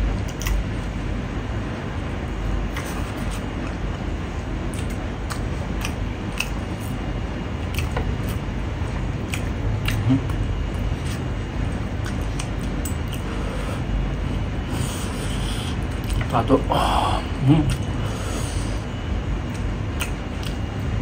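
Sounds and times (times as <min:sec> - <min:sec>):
low background rumble: 0:00.0 - 0:21.0
person chewing food: 0:02.6 - 0:04.0, 0:04.6 - 0:07.0, 0:07.6 - 0:16.3, 0:17.5 - 0:20.8
wet mouth clicks and smacks: 0:04.7 - 0:06.7, 0:09.3 - 0:10.4, 0:12.0 - 0:13.2, 0:19.5 - 0:20.6.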